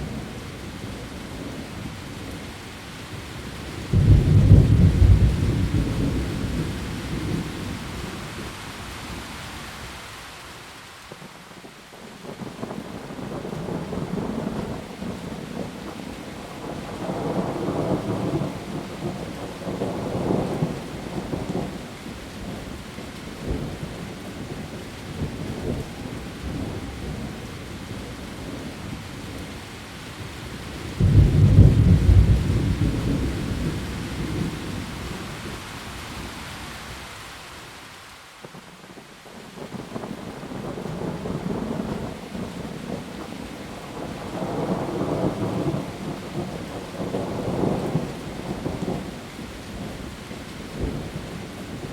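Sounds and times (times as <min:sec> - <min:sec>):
heavy rain on leaves: 0:00.0 - 0:51.9
thunder rumbling: 0:03.8 - 0:07.9, 0:31.0 - 0:36.3, 0:43.8 - 0:49.2.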